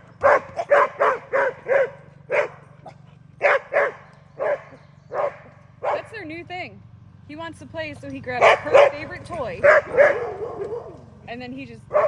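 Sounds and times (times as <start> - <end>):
dog barking: 0.2 - 6.1, 8.4 - 11.1.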